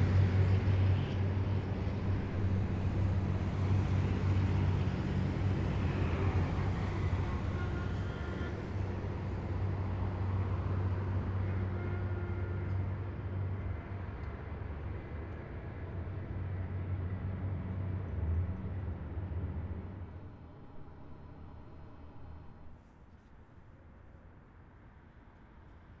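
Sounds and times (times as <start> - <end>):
heavy vehicles engine rumble: 0.0 - 22.8.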